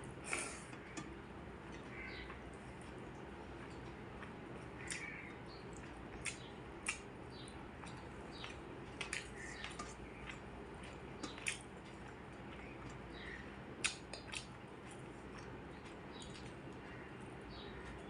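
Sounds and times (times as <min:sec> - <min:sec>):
low background hum: 0:00.0 - 0:18.0
wet chewing and mouth smacks: 0:05.7 - 0:13.2, 0:13.8 - 0:16.7.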